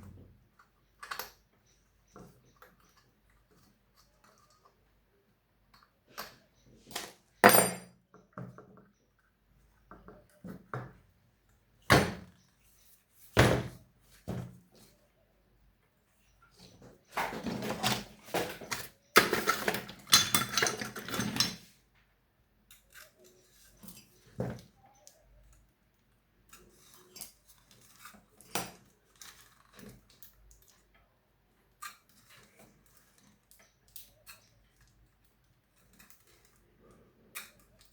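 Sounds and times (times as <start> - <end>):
spanner being set down: 7.4 - 7.9
metal parts clinking and knocking: 17.5 - 21.7.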